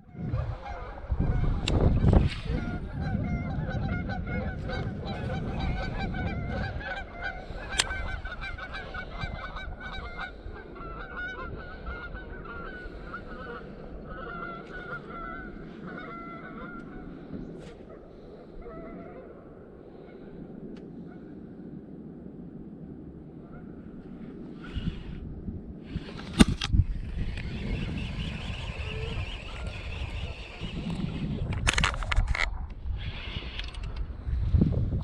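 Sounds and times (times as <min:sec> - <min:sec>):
geese honking: 0:00.0 - 0:19.5, 0:27.0 - 0:31.3.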